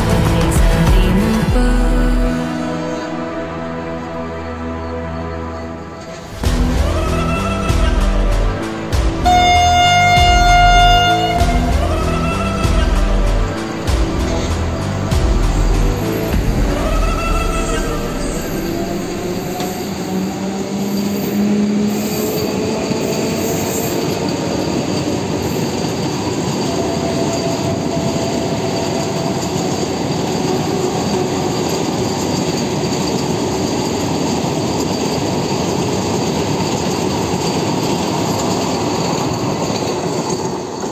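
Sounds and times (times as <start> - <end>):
train wheels rumbling on rail: 5.8 - 40.9.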